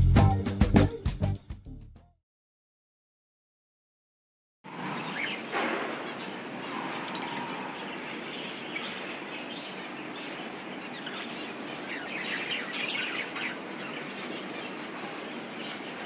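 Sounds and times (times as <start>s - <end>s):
steady background noise: 4.7s - 16.0s
budgerigars chirping and chattering: 7.2s - 16.0s.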